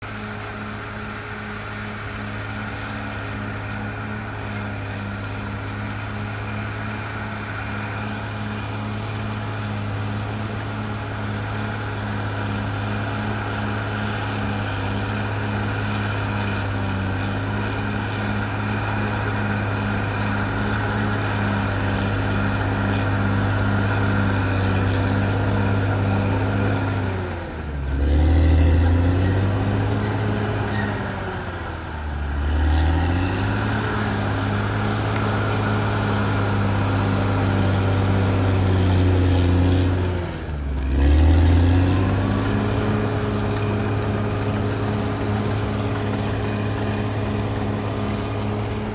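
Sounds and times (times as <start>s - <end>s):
bulldozer diesel engine running: 0.0s - 48.9s.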